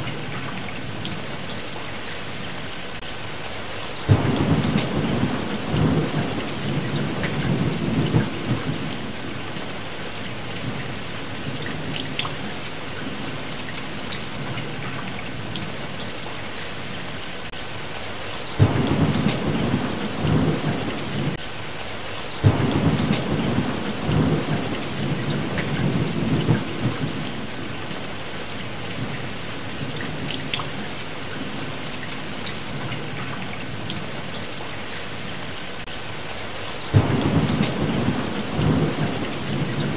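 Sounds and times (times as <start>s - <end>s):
heavy rain: 0.0s - 39.9s
thunder rolling: 37.0s - 39.9s.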